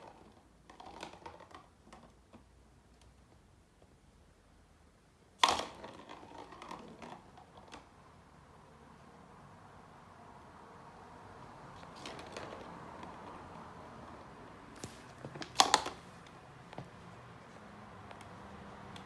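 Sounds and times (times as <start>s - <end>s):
ball tapping and clattering: 0.0s - 2.5s, 5.4s - 7.9s, 11.8s - 17.0s.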